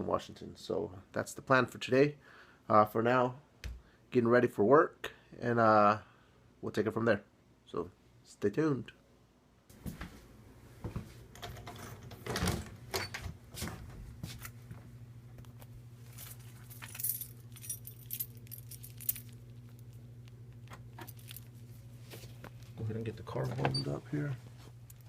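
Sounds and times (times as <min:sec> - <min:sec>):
steady low hum: 0:09.7 - 0:25.0
keys jangling: 0:16.1 - 0:19.9, 0:21.0 - 0:21.6.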